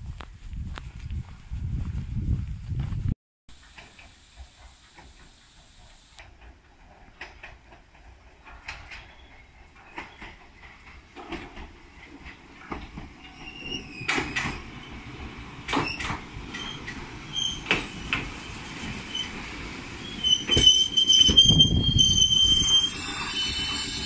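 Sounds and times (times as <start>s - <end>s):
hiss: 3.6s - 6.3s, 17.6s - 19.6s, 22.4s - 24.0s
train wheels knocking over rail joints: 3.6s - 21.6s
high brake squeal: 16.6s - 19.4s, 20.0s - 24.0s.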